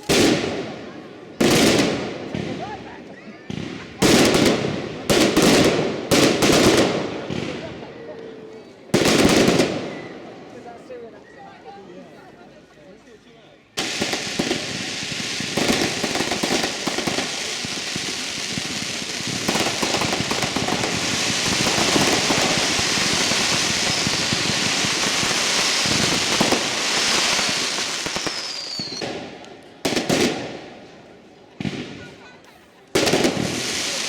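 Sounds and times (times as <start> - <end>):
firework hissing and crackling: 13.7 - 30.6, 33.0 - 34.0.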